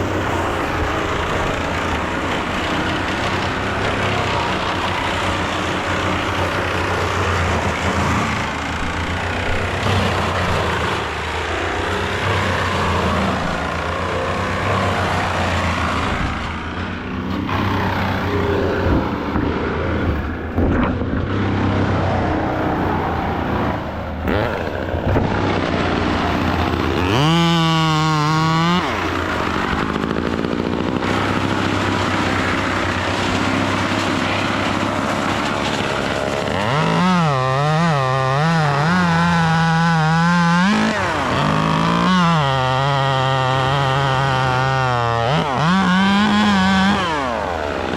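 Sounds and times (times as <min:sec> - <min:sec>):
chainsaw revving: 0:00.0 - 0:47.9
engine machinery running: 0:00.0 - 0:47.9.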